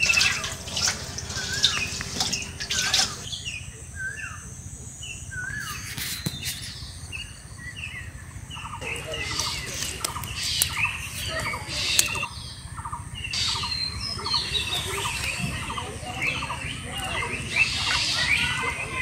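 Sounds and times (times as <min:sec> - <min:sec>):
small birds chirping: 0:00.0 - 0:19.0
sharp clicks: 0:11.9 - 0:12.3.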